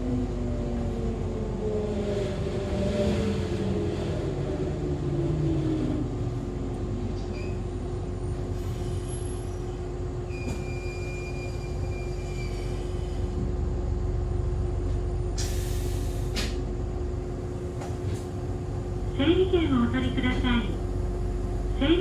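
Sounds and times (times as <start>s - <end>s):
high brake squeal: 10.3s - 13.2s
sharp hiss of air: 15.4s - 16.5s.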